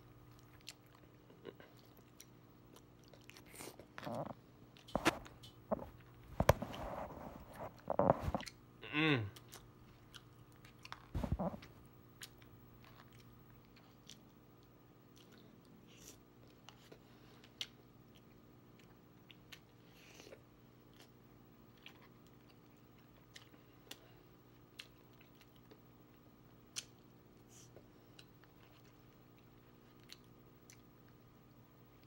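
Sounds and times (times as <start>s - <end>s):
steady low hum: 0.0s - 32.0s
person chewing food: 0.2s - 8.6s, 9.3s - 25.8s, 26.6s - 31.3s.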